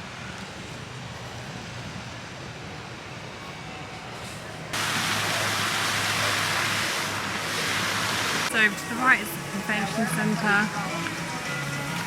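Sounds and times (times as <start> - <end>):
loud even hiss: 4.8 - 8.5.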